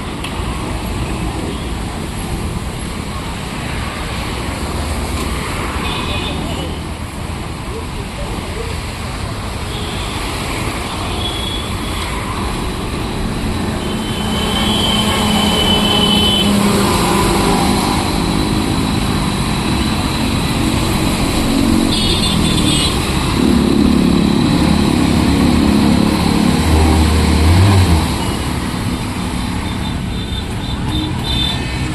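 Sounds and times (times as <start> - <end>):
steady rushing noise: 0.0 - 31.9
motorcycle engine revving: 14.5 - 29.2.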